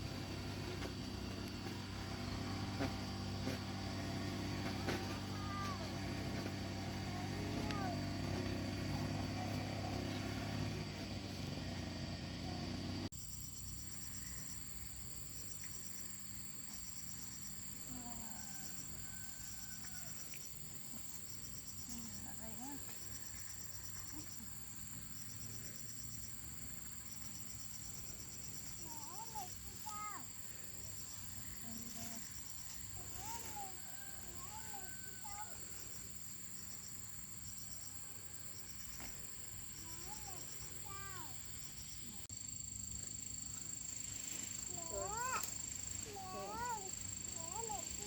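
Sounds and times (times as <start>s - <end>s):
low motor hum: 0.0s - 13.1s
insects chirping in pulses: 0.0s - 48.0s.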